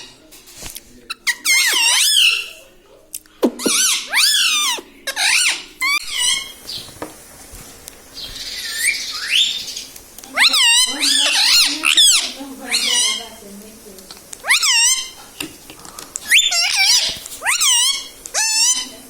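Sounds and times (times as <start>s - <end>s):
parrot squawking: 1.1s - 2.6s, 3.5s - 6.8s, 8.2s - 13.5s, 14.4s - 15.4s, 16.2s - 19.0s
parrot gliding call: 3.7s - 6.8s, 8.2s - 13.4s, 14.4s - 15.3s, 16.2s - 19.0s.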